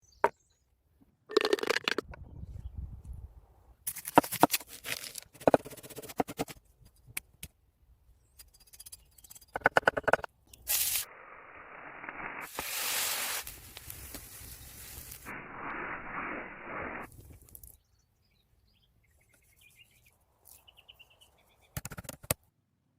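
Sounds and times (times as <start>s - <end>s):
steady hiss: 10.7s - 17.2s.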